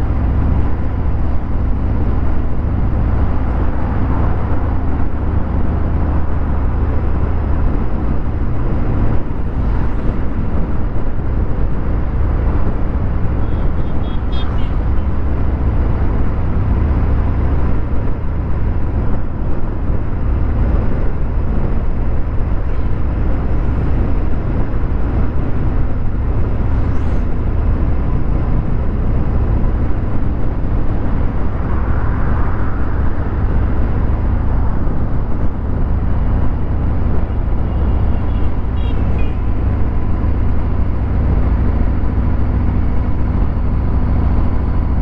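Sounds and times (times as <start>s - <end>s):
motorcycle engine low rumble: 0.0s - 45.0s.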